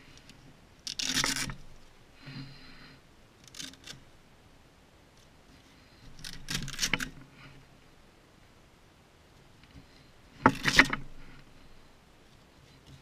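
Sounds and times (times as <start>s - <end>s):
gear clicks and rustles: 0.0s - 4.2s, 5.1s - 7.6s, 9.5s - 13.0s.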